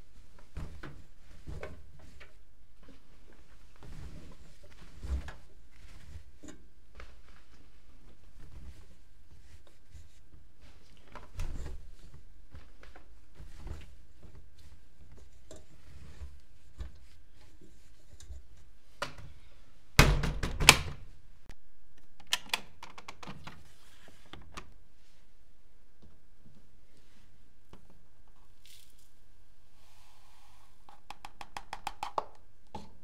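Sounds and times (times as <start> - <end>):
washing machine thunks and clicks: 20.0 - 21.0.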